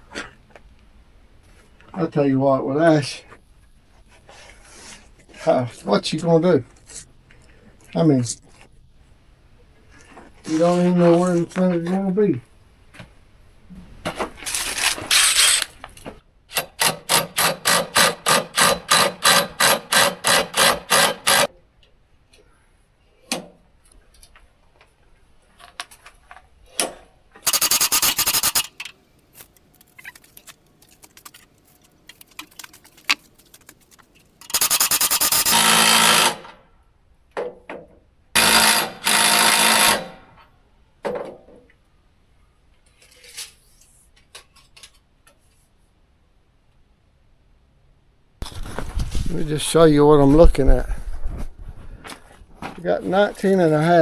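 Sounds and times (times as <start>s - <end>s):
mechanical clicking and ratcheting: 27.5s - 36.2s.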